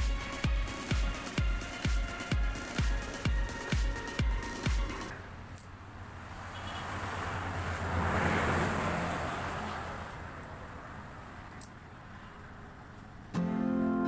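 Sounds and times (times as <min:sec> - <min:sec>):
motor vehicle passing by: 0:06.0 - 0:12.9.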